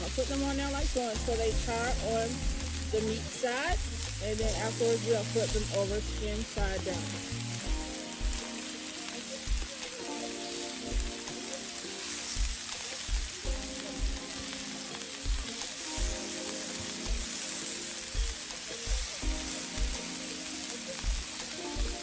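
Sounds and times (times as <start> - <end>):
background music with steady beat: 0.0 - 22.0
fish sizzling on a griddle: 0.0 - 22.0.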